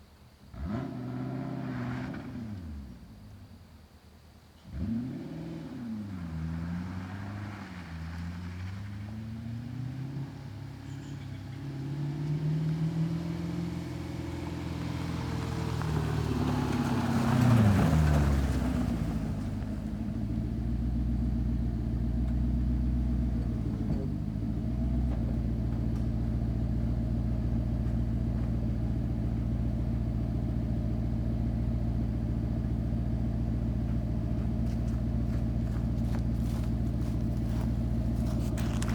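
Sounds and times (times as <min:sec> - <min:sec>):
car engine revving and idling: 0:00.3 - 0:03.9, 0:04.5 - 0:38.9.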